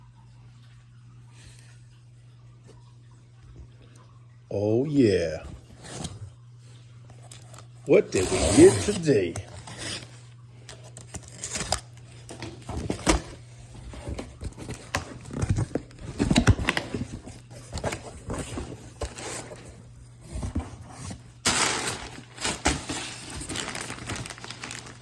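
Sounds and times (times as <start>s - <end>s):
packaging rustling: 7.2s - 25.0s.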